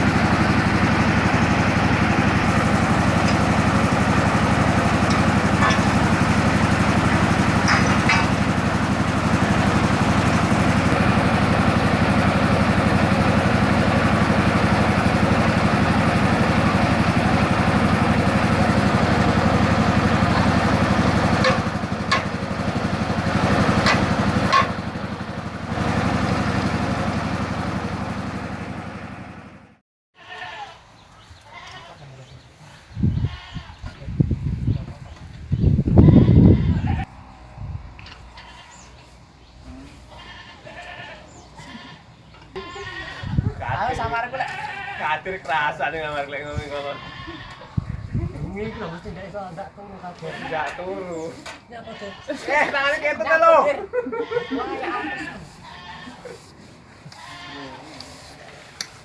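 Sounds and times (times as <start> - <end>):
drilling rig motor running: 0.0 - 29.8, 33.0 - 57.6
sharp knocks: 4.9 - 8.8.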